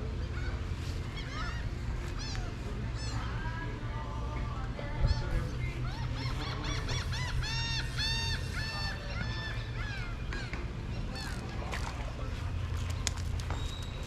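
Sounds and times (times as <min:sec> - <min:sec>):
bird honking call: 0:00.1 - 0:03.7, 0:05.0 - 0:11.7.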